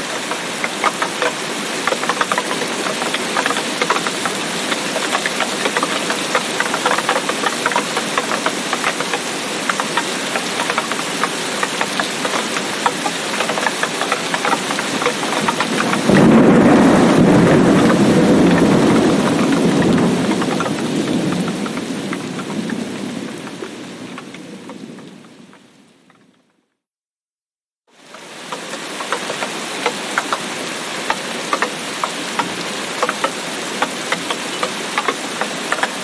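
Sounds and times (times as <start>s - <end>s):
heavy rain falling: 0.0s - 26.4s, 28.0s - 36.0s
thunderclap with low rumble: 14.7s - 25.7s.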